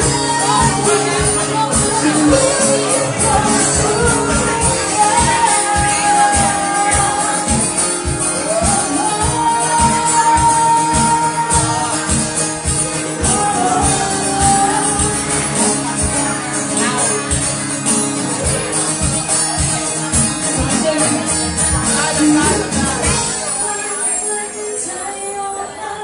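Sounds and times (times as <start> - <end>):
live band playing pop song: 0.0 - 26.0.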